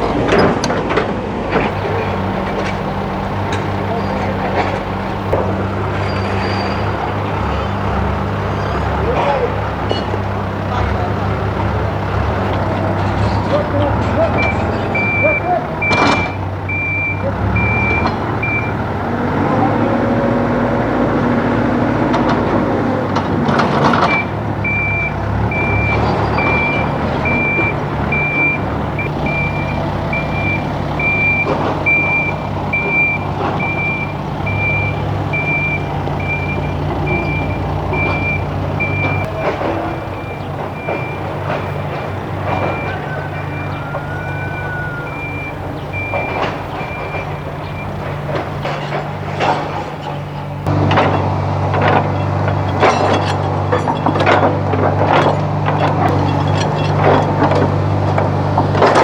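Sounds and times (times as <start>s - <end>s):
diesel engine running: 0.0s - 59.0s
backup alarm beeping: 13.6s - 18.9s, 23.8s - 48.8s.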